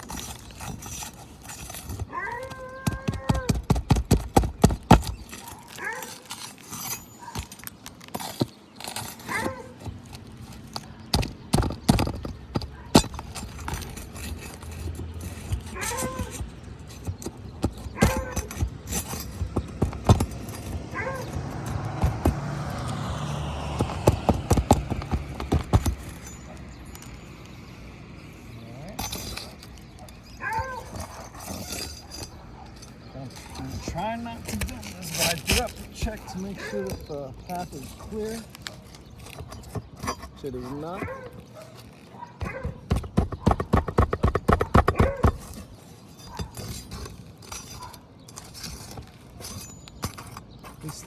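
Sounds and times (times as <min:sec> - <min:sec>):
tool handling with scrape: 0:00.0 - 0:02.9, 0:04.1 - 0:27.6, 0:28.2 - 0:43.2, 0:44.8 - 0:51.0
hand tools knocking on shingles: 0:00.0 - 0:26.7, 0:29.0 - 0:41.4, 0:42.4 - 0:51.0
fast sharp taps: 0:42.5 - 0:45.5.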